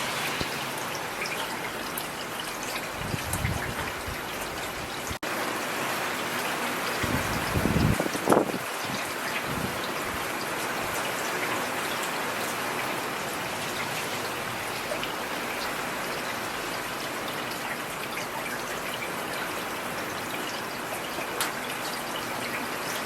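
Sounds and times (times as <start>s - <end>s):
rain on a hard surface: 0.0s - 23.0s.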